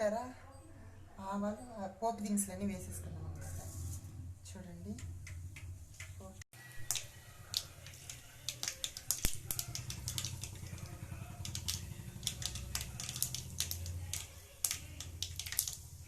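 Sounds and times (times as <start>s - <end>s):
seeds spluttering in hot oil: 6.6s - 16.0s.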